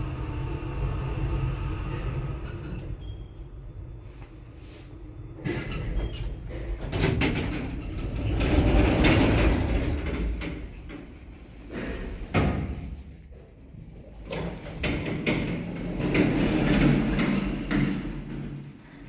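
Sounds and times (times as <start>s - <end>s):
elevator rumble and clatter: 0.0s - 19.0s
sliding doors clattering: 5.3s - 19.0s.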